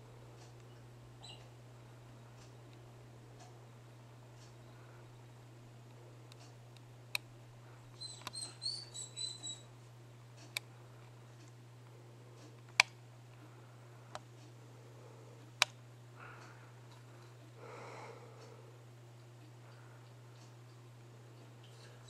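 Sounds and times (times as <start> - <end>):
steady low hum: 0.0 - 22.0
small bird chirping: 0.7 - 1.6, 8.0 - 9.7
sharp clicks: 7.9 - 9.6.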